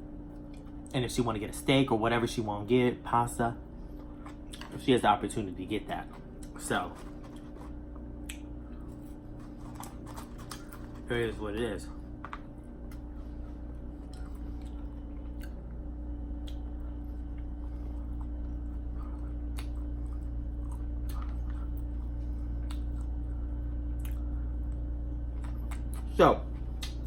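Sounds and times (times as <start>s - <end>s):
steady low hum: 0.0s - 27.0s
person chewing food: 3.7s - 4.8s, 5.9s - 11.1s, 11.9s - 27.0s.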